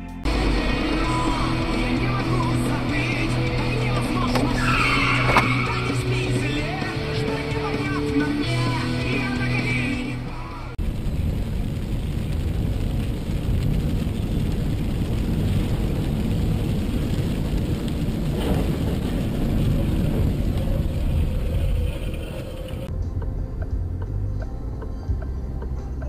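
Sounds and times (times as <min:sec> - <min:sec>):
burst of music: 0:00.2 - 0:10.8
car engine and road rumble: 0:00.2 - 0:26.0.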